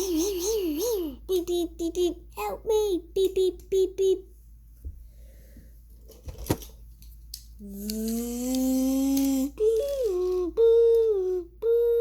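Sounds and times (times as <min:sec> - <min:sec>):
child humming play noises: 0:00.0 - 0:04.3, 0:07.6 - 0:12.0.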